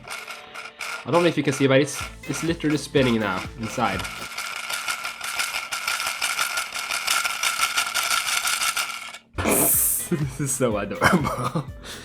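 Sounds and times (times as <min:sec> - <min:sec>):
toy motor whirring with rattle: 0:00.0 - 0:09.3.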